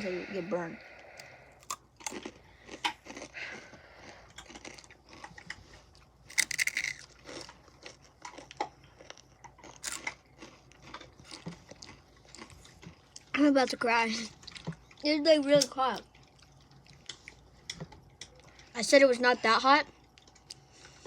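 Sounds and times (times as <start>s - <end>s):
crunching and chewing chips: 1.0s - 18.6s, 19.8s - 21.0s.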